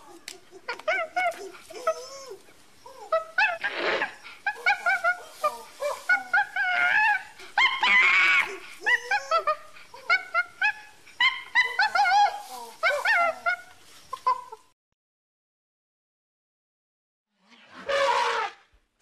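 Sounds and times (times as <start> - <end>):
chimpanzee hoots and squeaks: 0.0 - 14.6
chimpanzee scream-like call: 0.1 - 13.6, 17.8 - 18.6.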